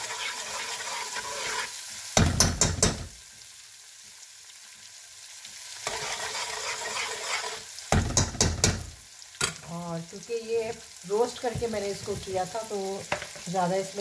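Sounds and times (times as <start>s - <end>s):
metal spoon stirring and scraping: 0.0s - 1.8s, 5.8s - 8.4s
paste sizzling in oil: 0.0s - 14.0s
spoon knocking against pot: 2.2s - 3.1s, 7.9s - 9.6s.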